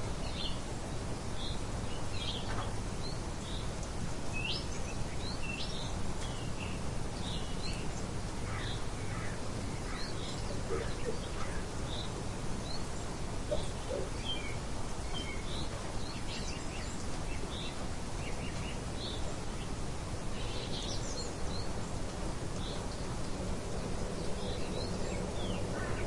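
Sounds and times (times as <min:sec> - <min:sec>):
songbirds chirping: 0:00.0 - 0:26.0
steady rain hiss: 0:00.0 - 0:26.0
low bird calls: 0:08.4 - 0:19.7, 0:22.6 - 0:26.0.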